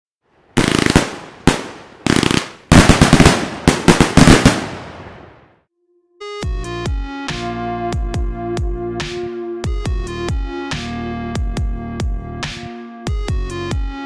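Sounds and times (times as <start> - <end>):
fireworks crackling bangs: 0.6 - 5.5.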